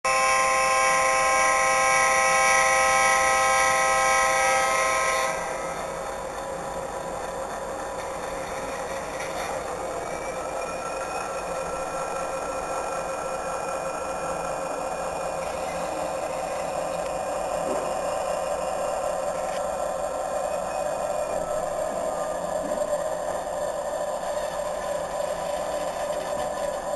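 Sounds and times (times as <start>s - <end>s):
locomotive horn chord: 0.1s - 6.0s
steady hissing running sound: 0.1s - 26.9s.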